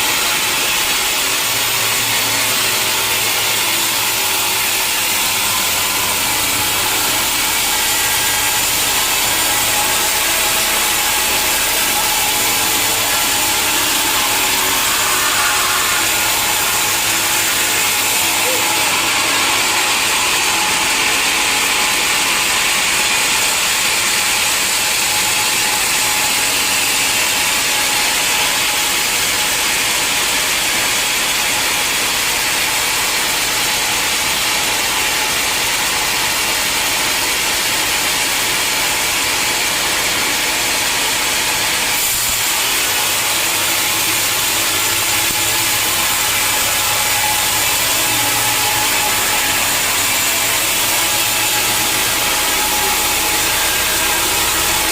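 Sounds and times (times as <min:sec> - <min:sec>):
saw cutting through log: 0:00.0 - 0:54.9.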